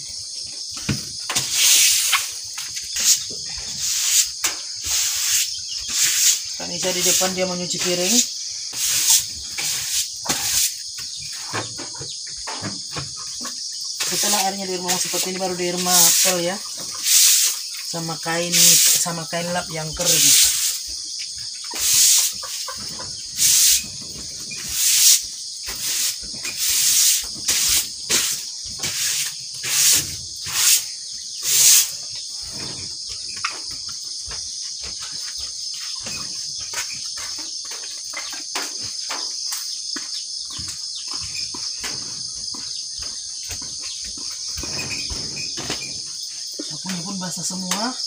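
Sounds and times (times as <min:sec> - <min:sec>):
crickets chirping: 0:00.0 - 0:48.0
broom sweeping water: 0:01.3 - 0:11.5, 0:14.0 - 0:21.0, 0:21.6 - 0:32.0.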